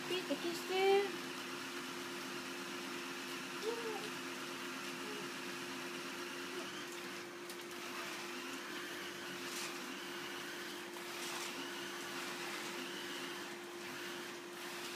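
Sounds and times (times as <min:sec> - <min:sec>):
vacuum cleaner humming: 0:00.0 - 0:14.9.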